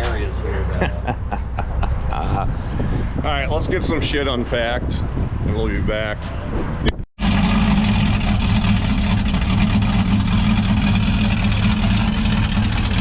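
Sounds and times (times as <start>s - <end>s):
vehicle engine idling: 7.2s - 13.0s.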